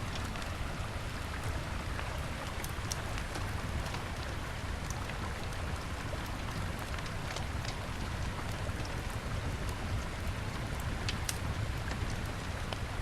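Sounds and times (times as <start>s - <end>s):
wood fire crackling: 2.5s - 9.3s, 9.9s - 12.9s.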